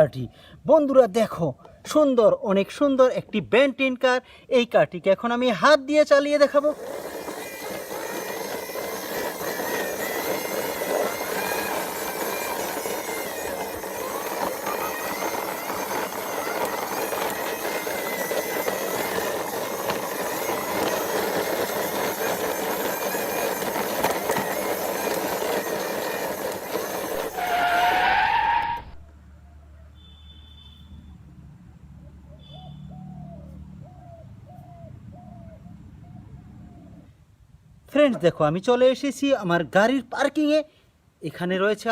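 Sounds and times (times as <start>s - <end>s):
toy car wheels rolling on ground: 5.2s - 29.1s
rising whine: 6.4s - 29.0s.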